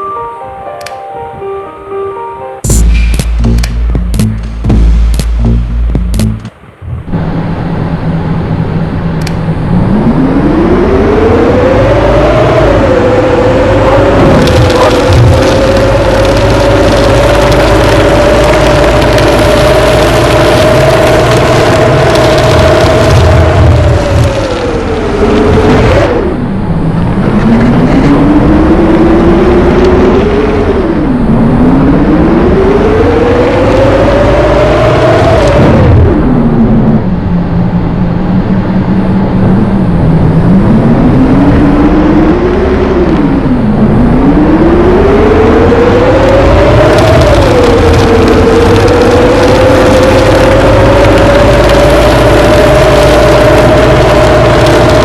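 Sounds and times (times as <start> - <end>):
engine revving up: 2.7 - 37.1, 39.2 - 55.0.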